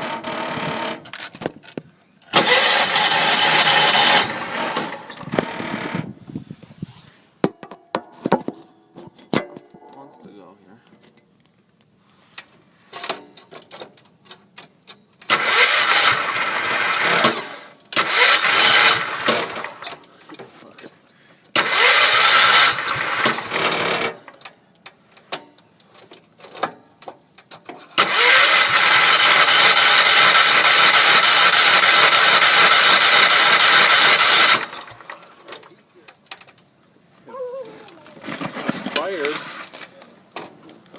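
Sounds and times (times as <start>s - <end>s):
starter cranking tractor engine: 0.0s - 1.5s, 2.2s - 6.2s, 15.2s - 20.8s, 21.5s - 24.6s, 27.8s - 36.6s.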